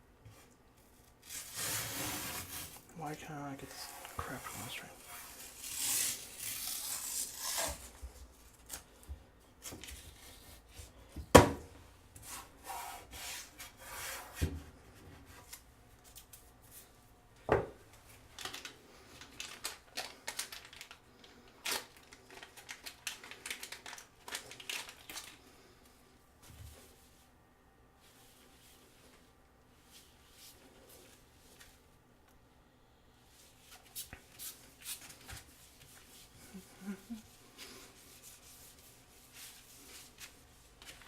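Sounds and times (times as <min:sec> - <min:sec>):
tearing: 0:01.2 - 0:02.8, 0:05.2 - 0:08.0
hands rubbing and rustling: 0:33.3 - 0:41.0.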